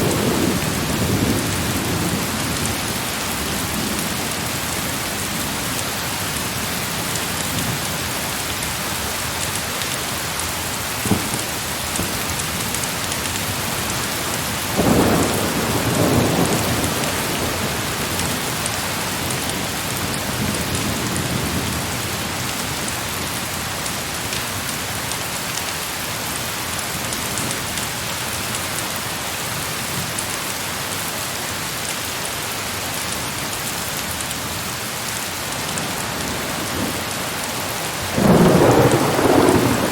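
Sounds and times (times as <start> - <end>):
heavy rain falling: 0.0 - 39.9
thunder rumble: 13.4 - 22.2, 35.7 - 39.9.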